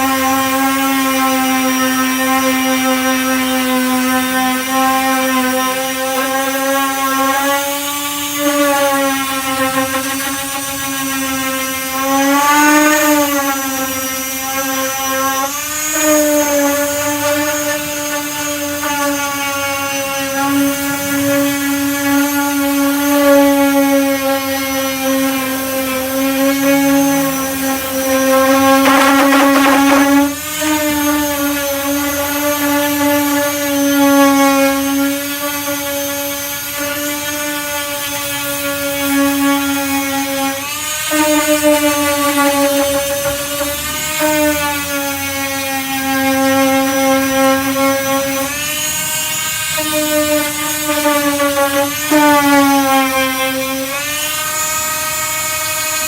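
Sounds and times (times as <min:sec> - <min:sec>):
power sander humming: 0:03.3 - 0:30.6.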